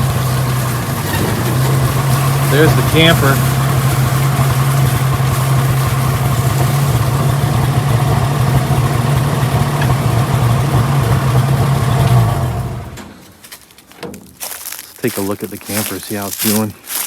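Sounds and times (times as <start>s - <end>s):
engine running at low revs: 0.0s - 13.2s.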